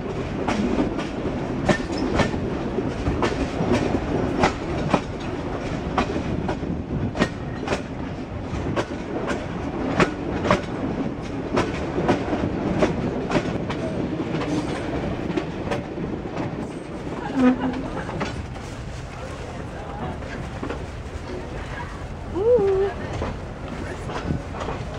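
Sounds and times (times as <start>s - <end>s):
wheels clacking over rail joints: 0.0s - 22.0s, 22.6s - 24.9s
train wheels rumbling: 0.0s - 24.9s.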